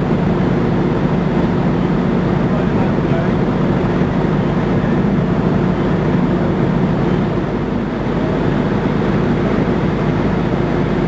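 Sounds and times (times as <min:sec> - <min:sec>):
fire truck engine droning: 0:00.0 - 0:11.0.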